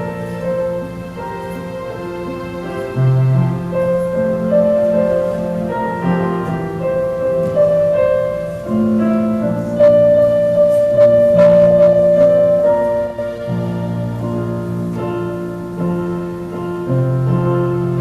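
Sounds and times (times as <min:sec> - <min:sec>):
keyboard playing slow chords: 0:00.0 - 0:18.0.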